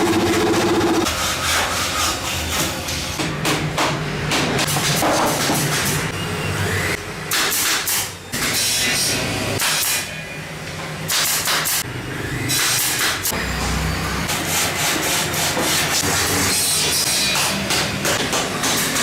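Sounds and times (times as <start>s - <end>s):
machinery hissing: 0.0s - 1.1s.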